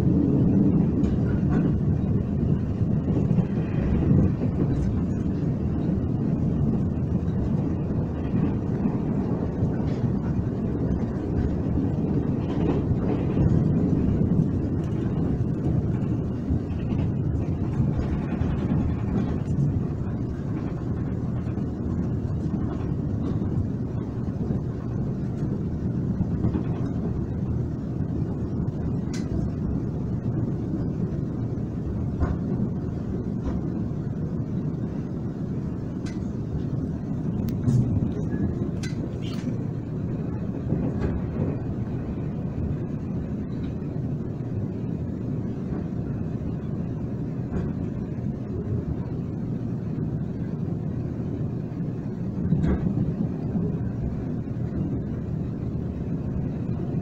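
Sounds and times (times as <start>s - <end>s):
train rumbling from inside: 0.0s - 57.0s
faint clicks: 29.1s - 29.5s, 36.0s - 36.4s, 37.4s - 39.6s.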